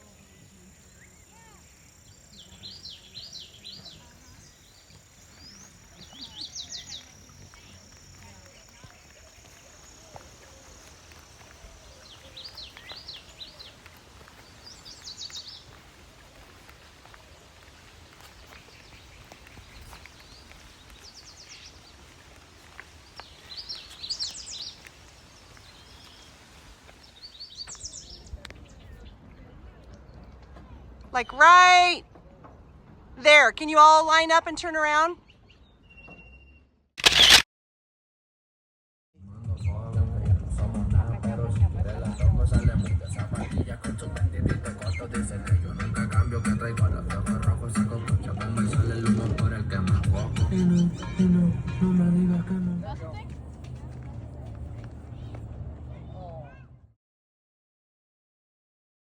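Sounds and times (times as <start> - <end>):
small birds chattering: 0.0 - 26.4, 27.0 - 30.2, 42.0 - 52.7
songbird singing: 0.0 - 36.8, 39.4 - 55.4
faint outdoor background noise: 0.0 - 37.4, 39.2 - 57.0.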